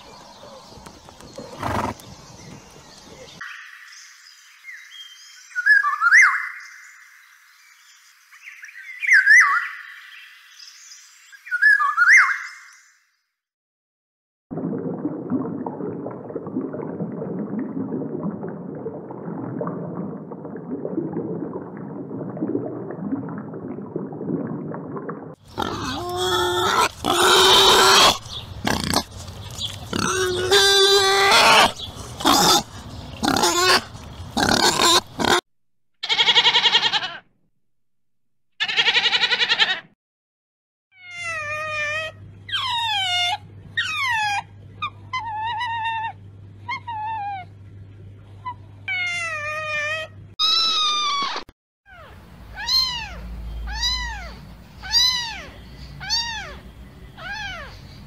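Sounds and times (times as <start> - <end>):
wild boar squealing: 25.5 - 29.2, 29.9 - 35.4, 38.6 - 39.8, 41.0 - 47.5, 48.9 - 56.6
wild boar grunting: 25.5 - 35.4.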